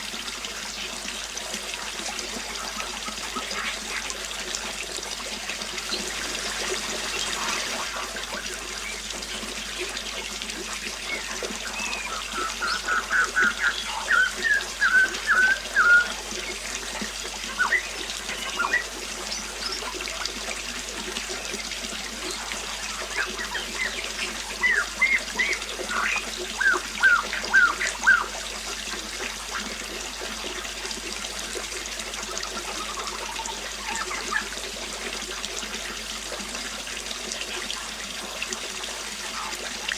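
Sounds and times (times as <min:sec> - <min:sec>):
water trickling: 0:00.0 - 0:39.9
small bird chirping: 0:22.2 - 0:28.3.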